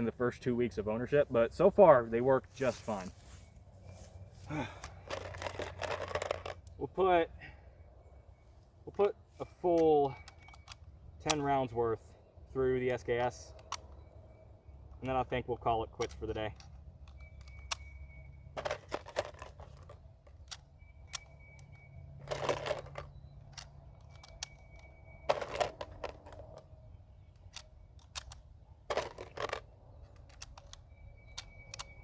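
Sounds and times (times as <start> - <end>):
rifle metal clicks: 9.4 - 11.8, 12.8 - 14.1, 18.7 - 32.0.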